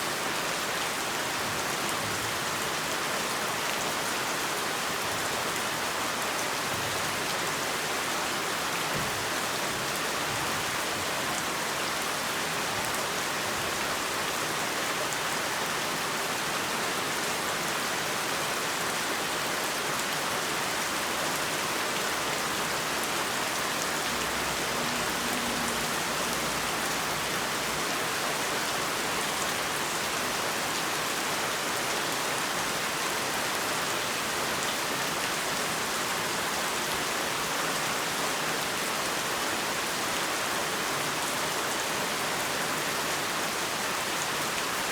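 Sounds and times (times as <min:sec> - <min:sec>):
heavy rain falling: 0:00.1 - 0:44.9.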